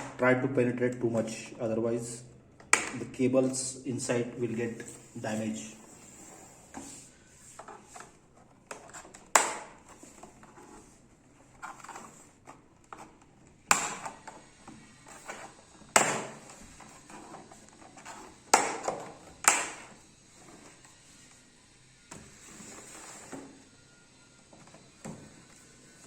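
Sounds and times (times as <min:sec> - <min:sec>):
plastic clips snapping: 0:02.6 - 0:03.1, 0:18.6 - 0:19.9
plastic scraping and handling: 0:04.4 - 0:21.4.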